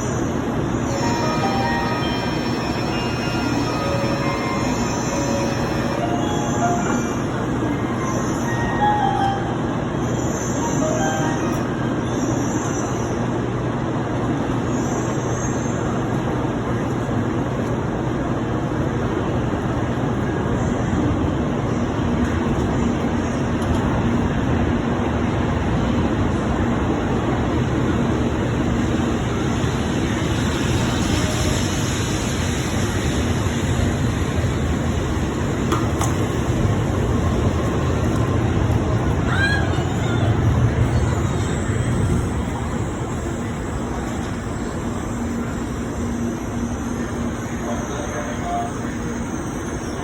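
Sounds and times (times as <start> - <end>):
train running with rushing noise: 0.0 - 50.0
brief higher tone: 0.9 - 12.3.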